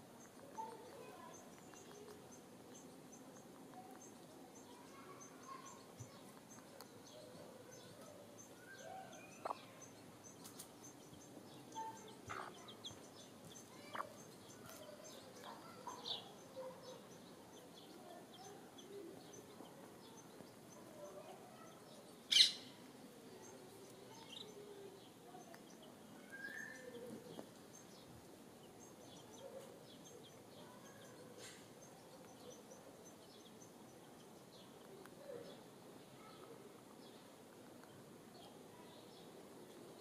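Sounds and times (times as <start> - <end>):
faint bird chirps: 0.0 - 40.0.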